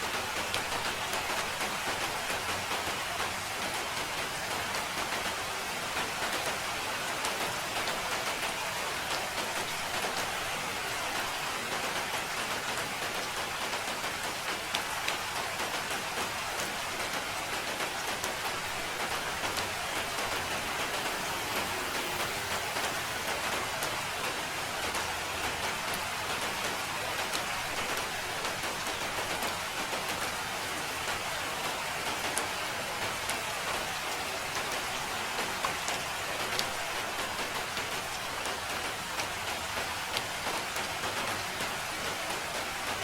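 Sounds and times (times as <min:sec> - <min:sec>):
rain pattering on a surface: 0:00.0 - 0:43.0.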